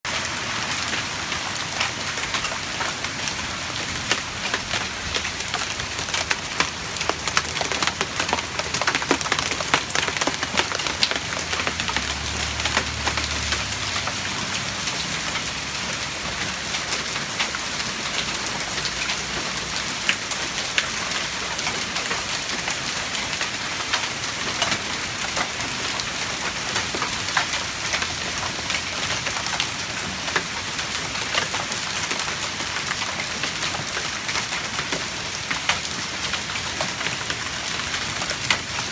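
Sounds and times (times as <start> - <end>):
hailstones falling hard: 0.8 - 15.4.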